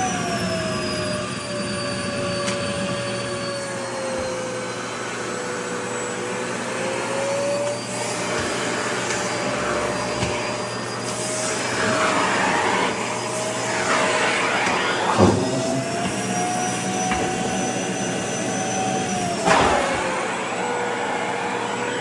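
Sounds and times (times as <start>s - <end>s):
vacuum cleaner running: 0.0s - 22.0s
brief thump: 14.7s - 17.4s.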